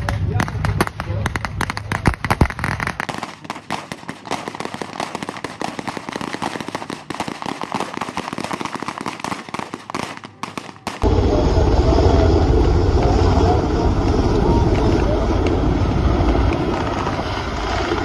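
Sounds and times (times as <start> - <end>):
rifle gunfire crackle: 0.0 - 11.0
steady low rumble: 11.0 - 18.0.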